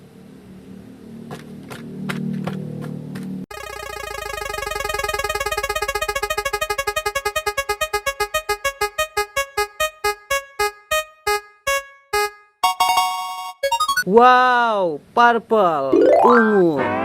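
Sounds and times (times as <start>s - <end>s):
repeating electronic note: 3.5s - 14.0s, 15.9s - 17.0s.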